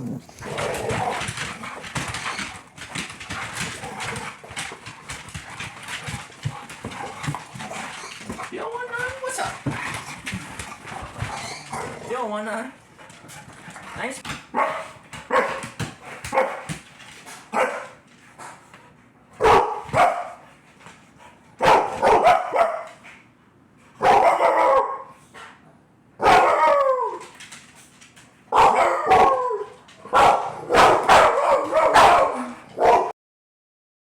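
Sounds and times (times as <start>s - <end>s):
dog barking: 14.5s - 15.6s, 16.3s - 16.7s, 17.5s - 18.0s, 19.4s - 20.4s, 21.6s - 23.0s, 24.0s - 25.1s, 26.2s - 26.8s, 28.5s - 33.1s.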